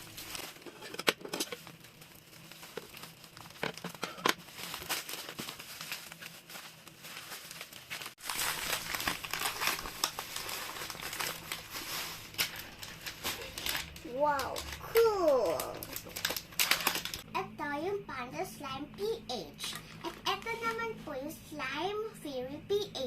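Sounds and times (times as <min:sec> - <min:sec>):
plastic packaging crinkling: 0:00.0 - 0:17.3.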